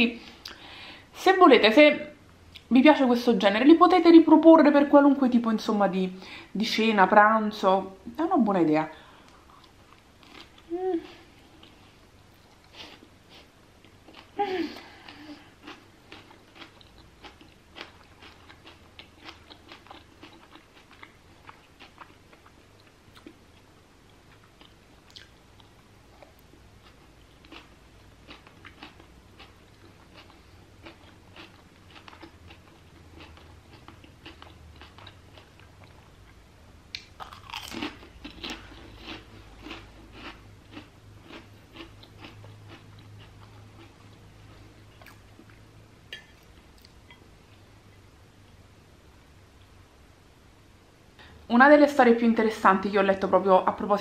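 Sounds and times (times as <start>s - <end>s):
person chewing wet crunchy food: 9.2s - 47.3s.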